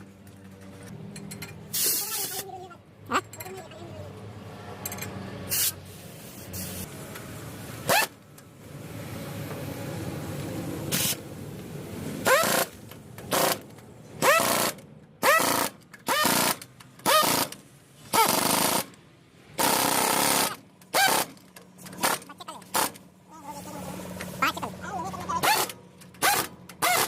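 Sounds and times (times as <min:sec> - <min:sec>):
compressed-air tool bursts: 0:05.5 - 0:06.9, 0:10.9 - 0:11.2, 0:14.2 - 0:18.9, 0:19.6 - 0:21.4, 0:22.0 - 0:23.0, 0:25.4 - 0:27.0.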